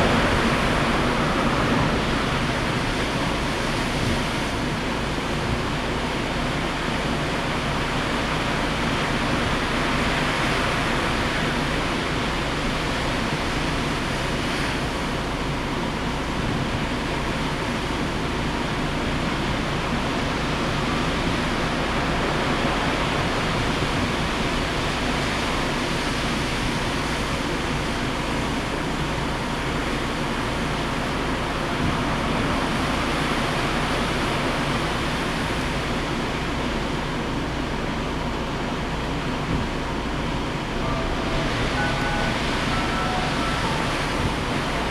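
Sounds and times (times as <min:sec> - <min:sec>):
heavy surf: 0:00.0 - 0:06.2, 0:39.2 - 0:44.9
strong wind: 0:00.0 - 0:44.9.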